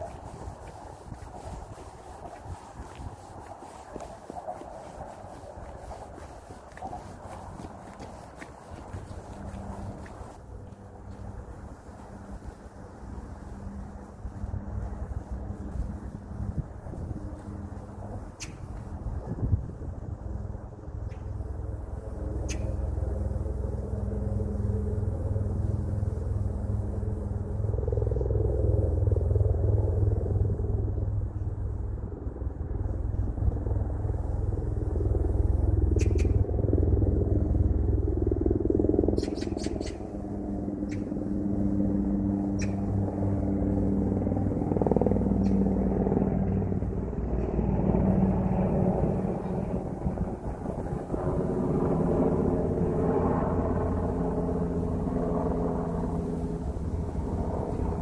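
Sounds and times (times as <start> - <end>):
faint engine hum: 0.0 - 58.0
sharp ticks: 18.4 - 18.8, 22.4 - 22.8, 36.0 - 36.4, 39.2 - 40.2, 42.5 - 43.0.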